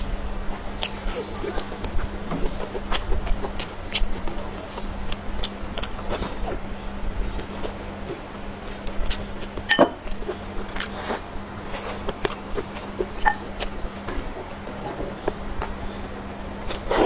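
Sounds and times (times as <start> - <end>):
chewing clicks: 2.7 - 6.6, 8.6 - 11.0.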